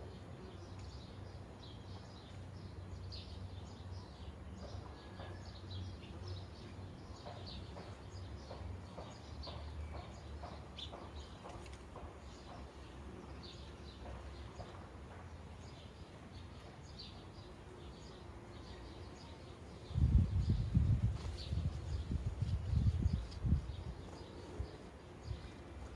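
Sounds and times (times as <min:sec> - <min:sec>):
sparrows chirping: 0:00.0 - 0:25.9.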